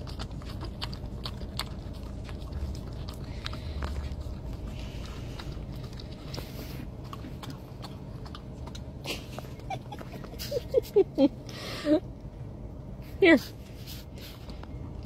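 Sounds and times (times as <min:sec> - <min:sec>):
dog licking and smacking lips: 0:00.0 - 0:10.8
low steady rumble: 0:00.0 - 0:15.0.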